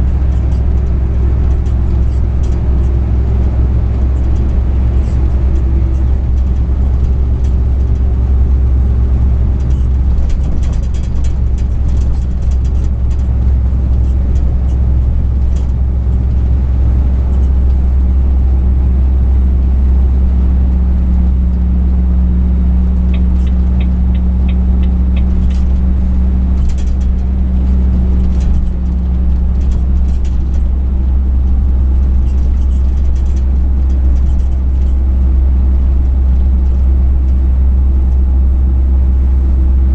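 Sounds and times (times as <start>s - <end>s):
higher engine note: 0.0s - 9.8s, 18.1s - 29.9s
truck engine and road rumble: 0.0s - 39.9s
quick evenly spaced ticks: 23.1s - 25.8s.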